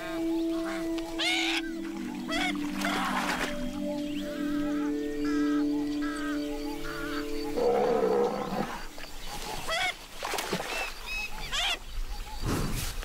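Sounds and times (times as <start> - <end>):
soft background music: 0.0 - 9.0
otter chirping calls: 0.0 - 9.9.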